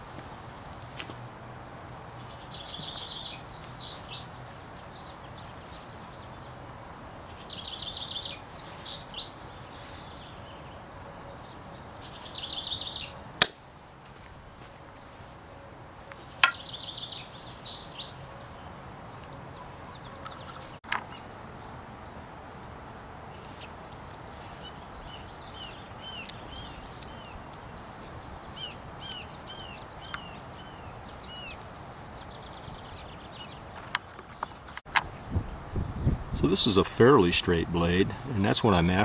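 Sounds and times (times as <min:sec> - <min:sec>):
small birds chirping: 0:00.0 - 0:13.3, 0:16.2 - 0:39.0.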